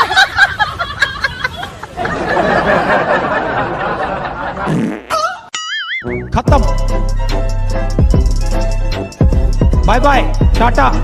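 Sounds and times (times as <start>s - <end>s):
people chuckling: 0.0s - 5.5s.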